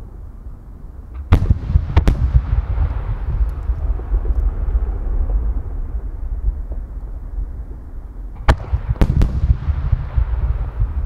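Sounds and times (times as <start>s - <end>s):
fireworks low rumble: 0.0s - 11.0s
firework sharp bangs: 1.2s - 6.9s, 8.4s - 11.0s.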